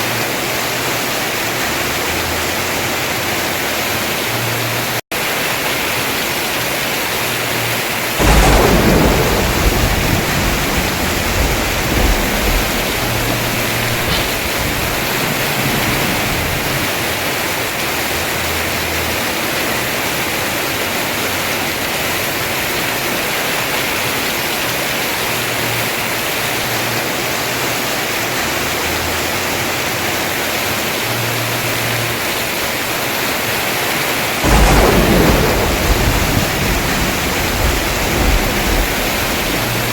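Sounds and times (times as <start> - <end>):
heavy rain on a roof: 0.0 - 39.9
thunder rumbling: 5.4 - 24.6, 33.3 - 39.9.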